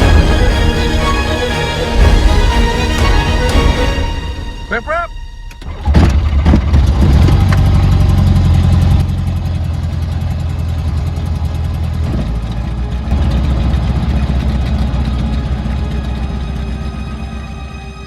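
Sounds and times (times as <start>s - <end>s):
light aircraft engine running: 5.6s - 18.0s.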